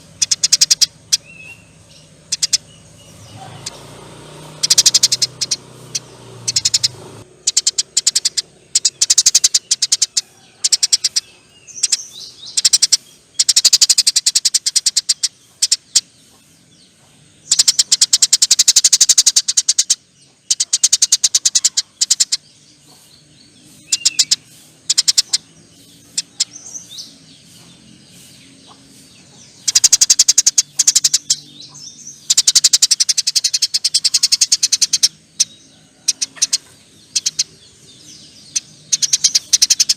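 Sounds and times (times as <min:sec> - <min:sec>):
sparrow chattering: 0:00.0 - 0:39.9.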